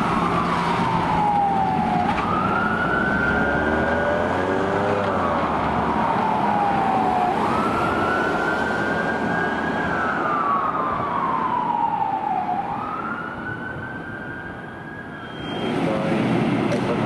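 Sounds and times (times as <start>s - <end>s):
truck engine rumble: 0.0s - 13.0s
fire truck siren wailing: 0.0s - 17.0s
road noise: 0.0s - 17.0s.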